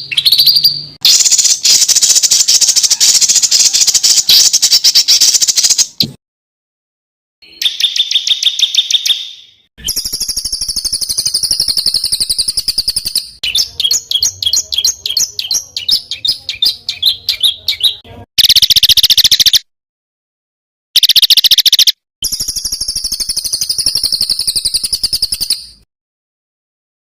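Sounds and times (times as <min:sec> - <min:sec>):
songbirds singing rapid trills: 0:00.0 - 0:06.0, 0:07.5 - 0:19.6, 0:21.0 - 0:25.8.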